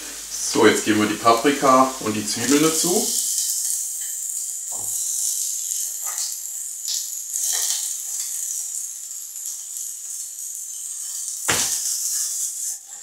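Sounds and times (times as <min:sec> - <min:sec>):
vegetables sizzling in oil: 0:00.0 - 0:13.0
soft knocks on cutting board: 0:11.5 - 0:11.8.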